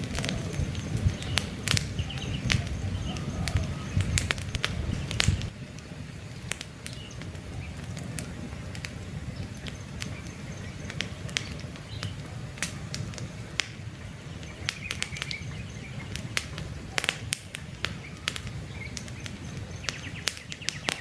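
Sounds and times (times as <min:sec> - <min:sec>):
campfire crackling: 0:00.0 - 0:21.0
faint bird chirps: 0:00.2 - 0:05.2, 0:17.9 - 0:21.0.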